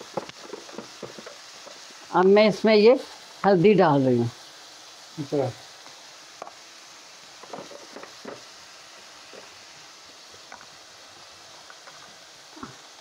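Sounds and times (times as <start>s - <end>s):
spoon scraping pan: 0.0s - 2.1s, 7.4s - 8.5s
masala sizzling in oil: 0.0s - 13.0s.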